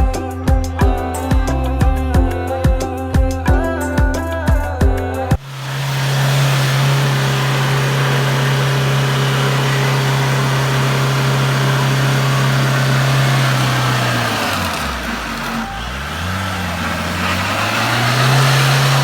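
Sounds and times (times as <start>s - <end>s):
road noise: 5.4s - 19.0s
vehicle engine droning: 5.4s - 19.0s.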